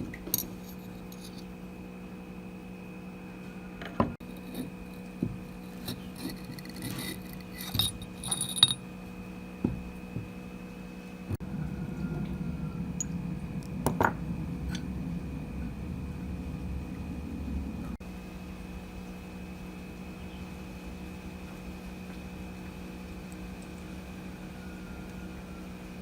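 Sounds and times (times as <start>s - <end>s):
steady machine noise: 0.0s - 20.9s
small metal parts clinking: 0.3s - 1.5s, 5.6s - 8.8s
short metallic rings: 5.7s - 8.8s.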